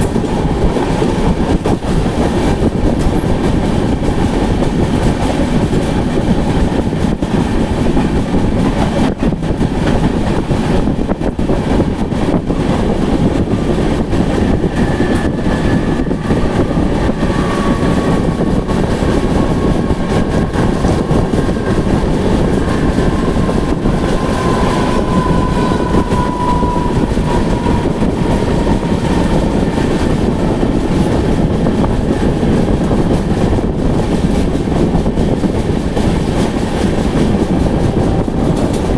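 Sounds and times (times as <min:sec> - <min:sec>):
train wheels rumbling on track: 0:00.0 - 0:38.9
faint high squeal: 0:24.0 - 0:28.6.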